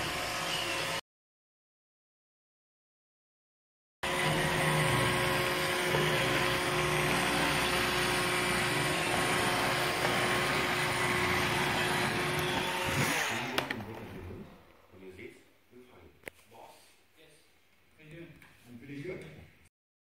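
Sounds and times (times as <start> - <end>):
robot vacuum running: 4.0 - 14.4.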